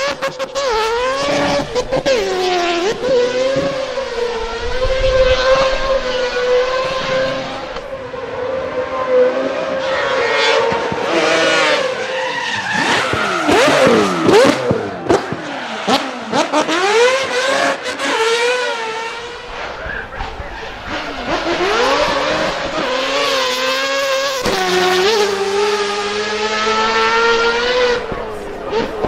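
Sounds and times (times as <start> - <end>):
rotary engine revving: 0.0 - 29.0.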